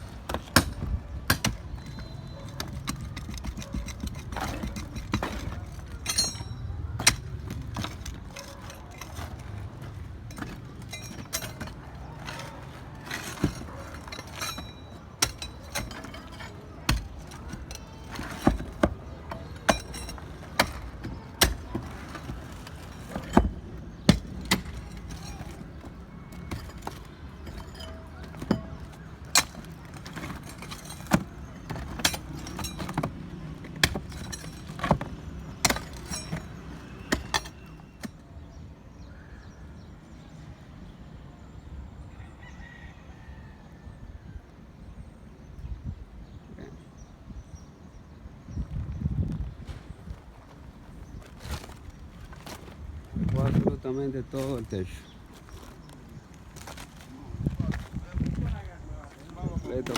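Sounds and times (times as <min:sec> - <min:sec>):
hammer on chisel chipping concrete: 0:13.0 - 0:38.1.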